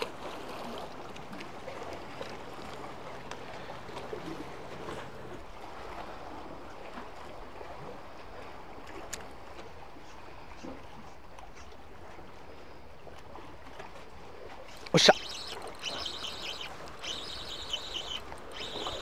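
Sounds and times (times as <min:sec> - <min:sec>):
seawater washing among concrete: 0:14.5 - 0:19.0.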